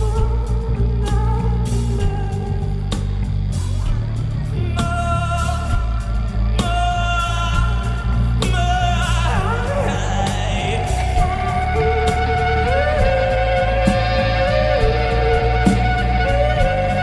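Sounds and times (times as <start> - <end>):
person singing: 0.0 - 3.2, 6.6 - 17.0
drums with cymbal crashes: 0.0 - 17.0
heavy bass: 0.0 - 17.0
electric guitar bending notes: 8.8 - 17.0.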